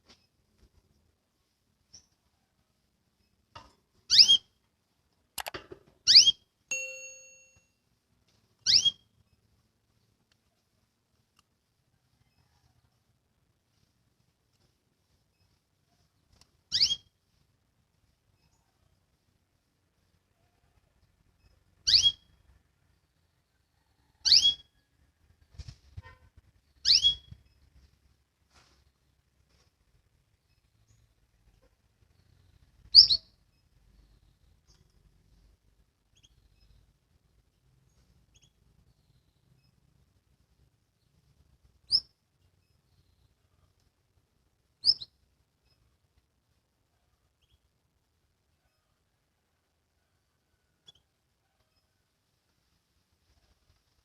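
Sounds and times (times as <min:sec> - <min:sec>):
canary chirping: 0:04.0 - 0:04.6, 0:06.0 - 0:07.0, 0:08.6 - 0:09.4, 0:16.7 - 0:17.1, 0:21.4 - 0:22.5, 0:24.2 - 0:24.8, 0:26.6 - 0:27.6, 0:30.4 - 0:37.0, 0:37.6 - 0:39.9, 0:41.8 - 0:43.6, 0:44.8 - 0:46.0, 0:47.4 - 0:47.7
quick clicks: 0:05.4 - 0:05.8
short metallic ding: 0:06.7 - 0:07.7.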